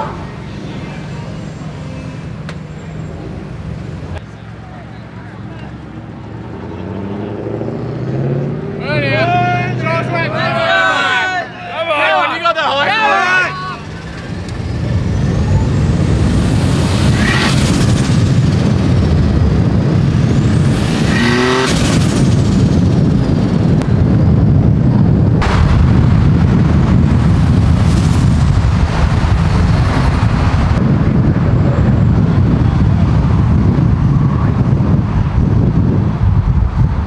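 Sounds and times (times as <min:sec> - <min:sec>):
cars driving past: 0:00.0 - 0:24.2
engine revving: 0:06.3 - 0:10.9, 0:13.2 - 0:23.9.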